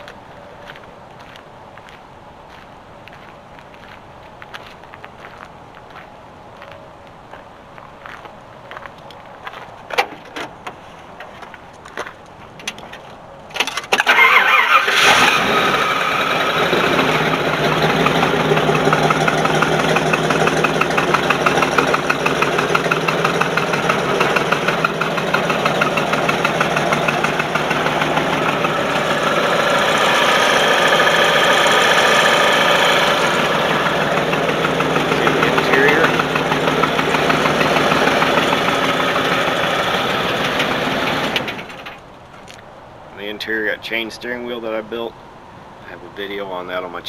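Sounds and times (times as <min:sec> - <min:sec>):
engine cranking and idling: 0:13.5 - 0:42.1.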